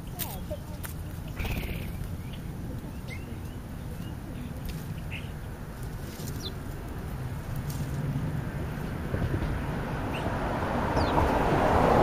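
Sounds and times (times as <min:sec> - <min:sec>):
steady low rumble: 0:00.0 - 0:12.0
high bird chirps: 0:01.3 - 0:04.2.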